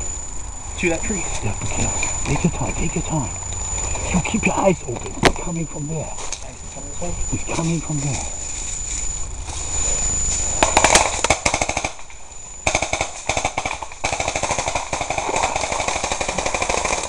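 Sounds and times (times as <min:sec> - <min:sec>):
airsoft guns firing full-auto: 0:10.6 - 0:17.0.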